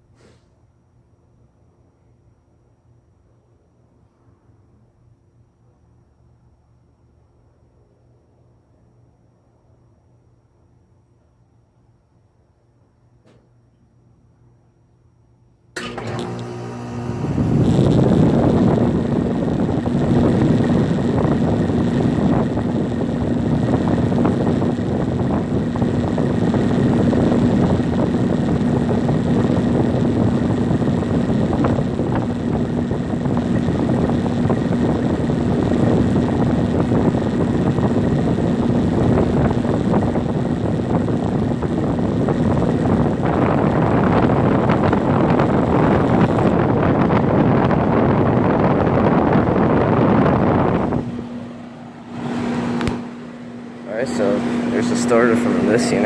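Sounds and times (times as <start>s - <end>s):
compressor hum: 15.8s - 56.0s
fan air rushing: 15.8s - 56.0s.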